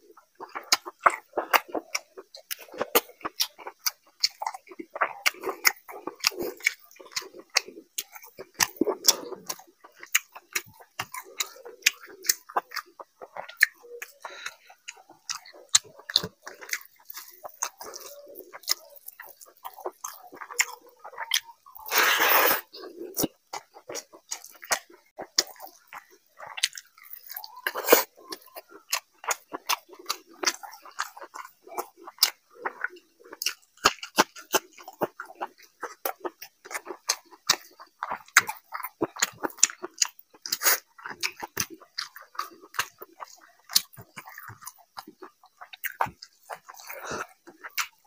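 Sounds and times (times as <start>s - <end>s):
close chewing with wet smacks: 0.0s - 48.0s.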